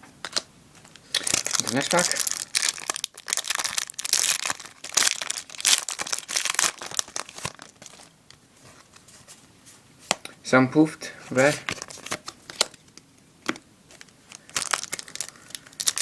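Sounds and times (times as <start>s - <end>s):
foil wrapper tearing and crinkling: 1.1s - 8.1s, 14.0s - 16.0s.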